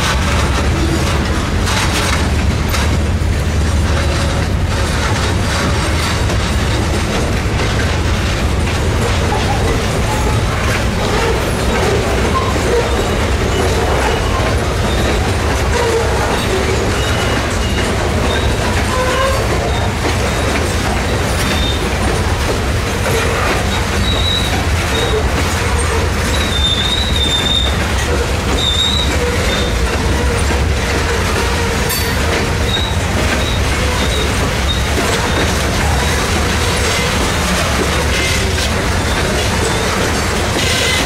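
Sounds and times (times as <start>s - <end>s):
freight train wheels rumbling: 0.0s - 41.0s
wheel squeals: 8.6s - 41.0s.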